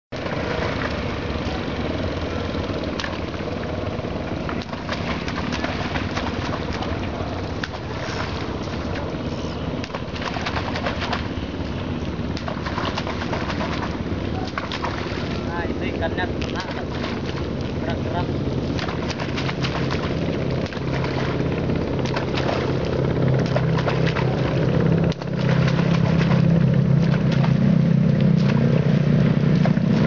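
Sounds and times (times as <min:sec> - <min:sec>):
steady low rumble: 0:00.1 - 0:30.0
small clicks and crackles: 0:16.4 - 0:18.0.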